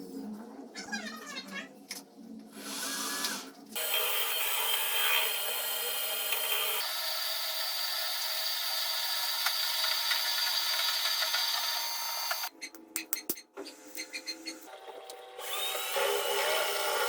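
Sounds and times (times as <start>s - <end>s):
electric power tool whining: 3.2s - 12.5s.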